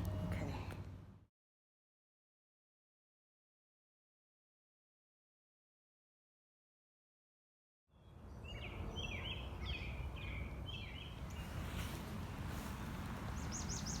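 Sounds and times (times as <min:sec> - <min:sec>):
bird chirping: 0:07.9 - 0:11.8, 0:12.9 - 0:14.0.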